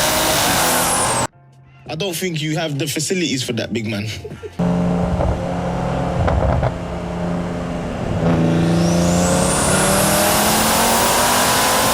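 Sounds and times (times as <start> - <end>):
car engine accelerating: 0.0 - 1.3, 4.6 - 11.9
high turbo whine: 0.0 - 1.3, 4.6 - 11.9
exhaust cracks: 4.6 - 10.7.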